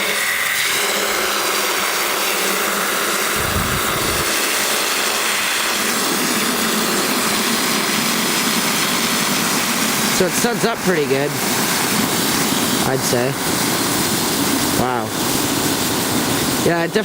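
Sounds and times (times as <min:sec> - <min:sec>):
low rumble: 0:03.4 - 0:04.3.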